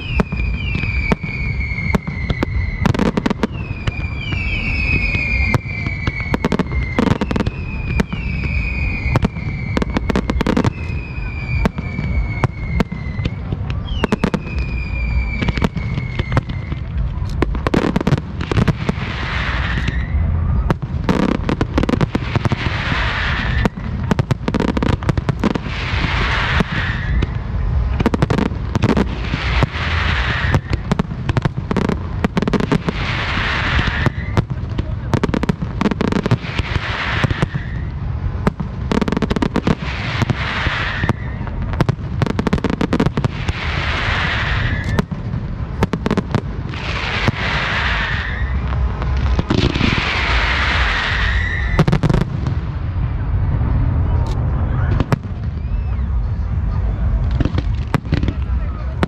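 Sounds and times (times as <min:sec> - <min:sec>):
falling whistle: 0:00.0 - 0:16.9, 0:19.3 - 0:20.7, 0:44.3 - 0:45.1, 0:47.7 - 0:48.6, 0:50.6 - 0:52.0, 0:55.4 - 0:56.3
fireworks bangs and crackling: 0:00.0 - 0:59.0
hissing rush: 0:00.0 - 0:59.0.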